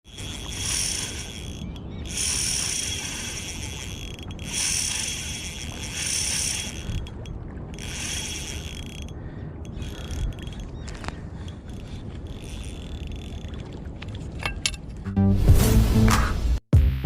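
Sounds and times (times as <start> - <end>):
fishing reel drag buzzing: 0.0 - 13.8.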